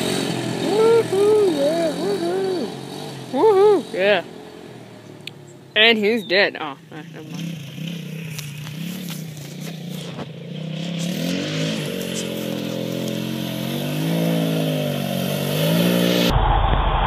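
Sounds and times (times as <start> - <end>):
small vehicle engine revving: 0.0 - 16.3.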